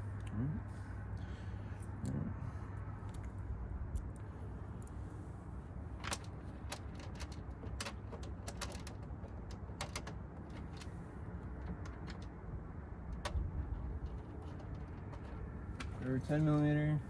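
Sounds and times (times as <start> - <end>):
steady low rumble: 0.0 - 7.0.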